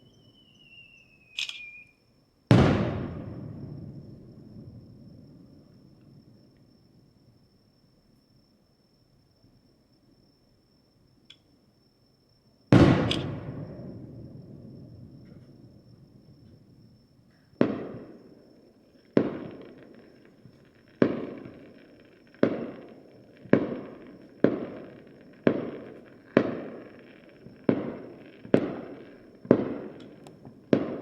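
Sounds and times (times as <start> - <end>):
fireworks bursting with echo: 2.5 - 6.5, 12.7 - 16.8, 17.5 - 31.0.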